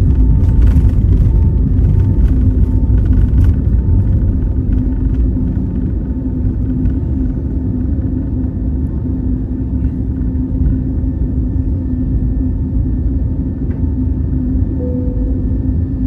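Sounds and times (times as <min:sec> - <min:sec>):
jet airliner cabin noise: 0:00.0 - 0:16.0.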